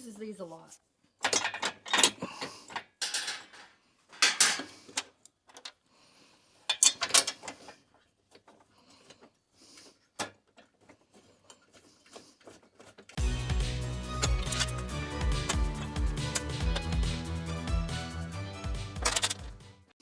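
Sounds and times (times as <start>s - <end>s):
hand tools clicking and rattling: 1.2s - 5.8s, 10.4s - 19.5s.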